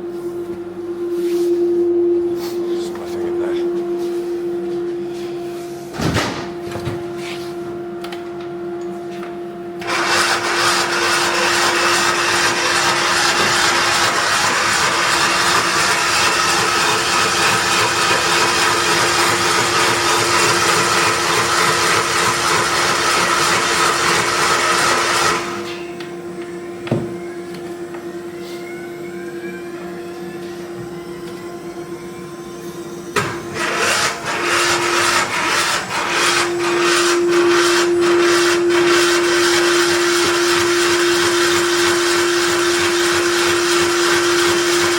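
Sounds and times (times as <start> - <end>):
steady hum: 0.0 - 44.4
motorised machine running: 9.8 - 25.8, 33.0 - 44.9.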